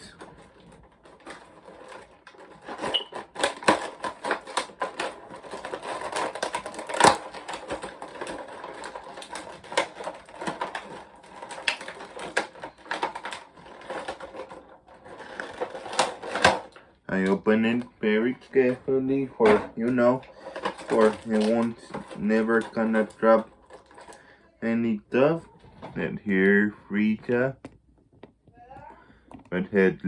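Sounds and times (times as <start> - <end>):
packaging clicks and taps: 0.0 - 17.9, 19.4 - 24.3.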